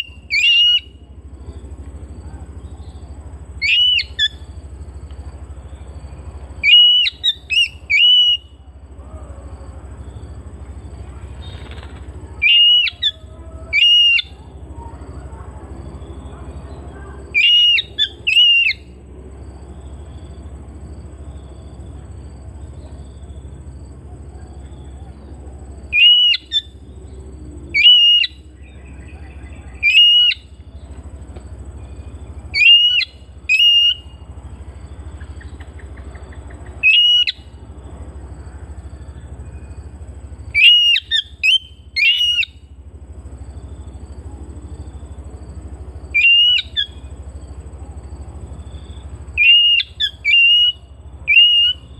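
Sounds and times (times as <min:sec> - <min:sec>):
low hum: 0:00.0 - 0:51.9.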